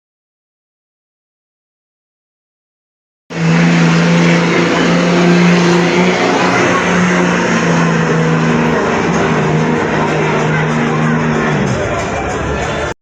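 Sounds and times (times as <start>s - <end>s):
truck engine running under load: 3.3s - 12.9s.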